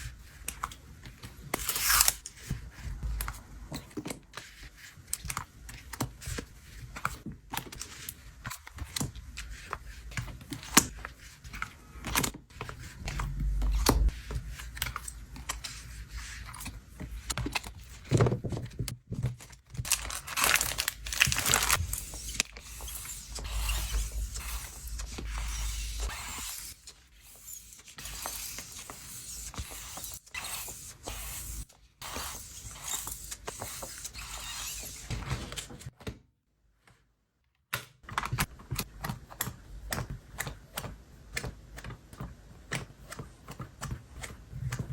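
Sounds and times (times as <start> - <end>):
paper tearing rustle: 1.6 - 2.2, 19.8 - 26.8
paper and plastic crinkling: 17.4 - 26.1.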